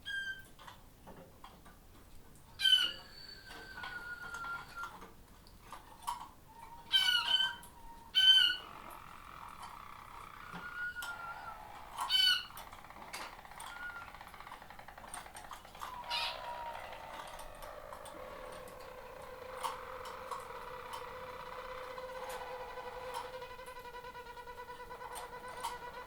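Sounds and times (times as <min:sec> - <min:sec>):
canaries singing rolling tones: 0:02.5 - 0:05.0, 0:05.7 - 0:26.0
sharp bird call: 0:15.8 - 0:26.0.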